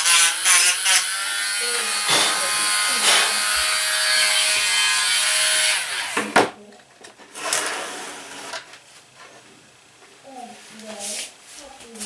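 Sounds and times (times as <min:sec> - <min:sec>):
rotary tool sanding whine: 0:00.0 - 0:06.4
sharp knock: 0:02.1 - 0:03.4.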